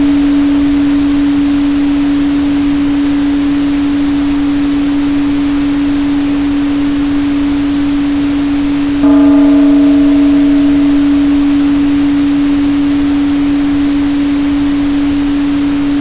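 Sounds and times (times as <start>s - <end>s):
steady pure tone: 9.0s - 15.9s.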